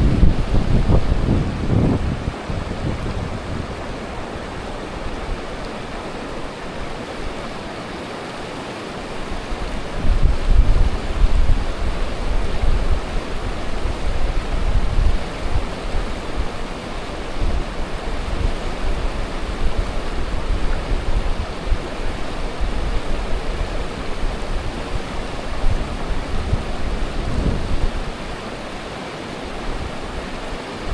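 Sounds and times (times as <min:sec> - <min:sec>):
steady rushing noise: 0:00.0 - 0:06.8
wind buffeting microphone: 0:00.0 - 0:07.0, 0:22.6 - 0:28.3.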